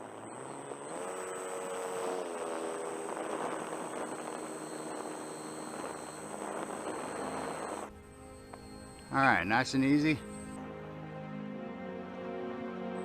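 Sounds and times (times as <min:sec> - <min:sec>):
model plane motor and propeller: 0:00.0 - 0:10.6
steady high whine: 0:00.0 - 0:10.6.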